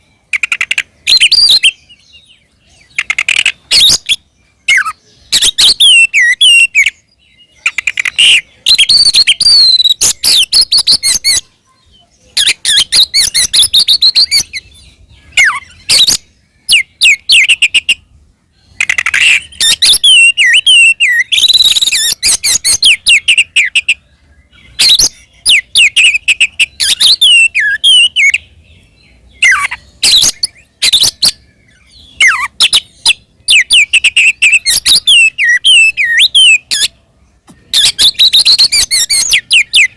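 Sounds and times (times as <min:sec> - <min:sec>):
bird singing whistled phrases: 0:00.0 - 0:18.0, 0:18.7 - 0:28.5, 0:29.3 - 0:37.0, 0:37.6 - 0:39.9.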